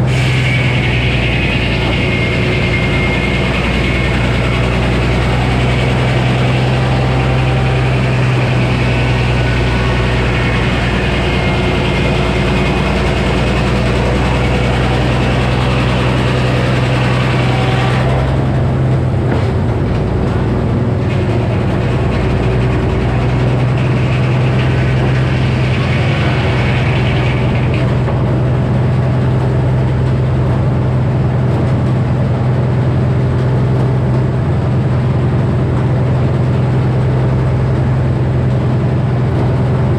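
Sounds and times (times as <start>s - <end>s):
circular saw hissing: 0.0s - 18.9s, 19.6s - 28.3s
sawmill engine running: 0.0s - 39.9s.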